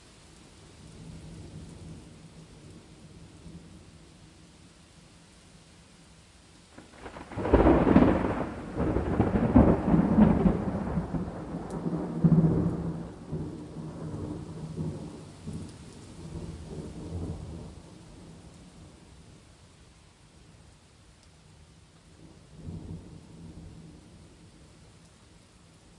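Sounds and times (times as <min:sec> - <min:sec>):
faint steady rain: 0:00.0 - 0:25.9
thunderclap and rumble: 0:06.8 - 0:18.9.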